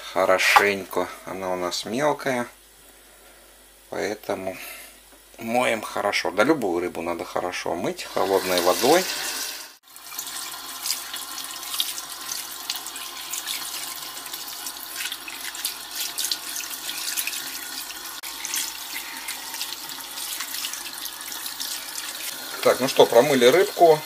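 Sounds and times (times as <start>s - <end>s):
tap water running into sink: 8.2s - 24.0s.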